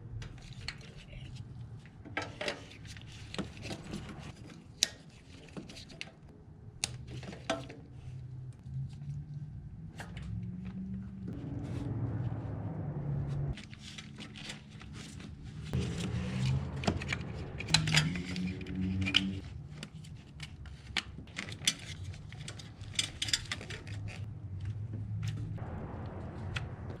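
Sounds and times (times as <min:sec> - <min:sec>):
tools and parts clattering: 0:02.0 - 0:04.6, 0:13.8 - 0:24.3
low steady hum: 0:08.0 - 0:20.3.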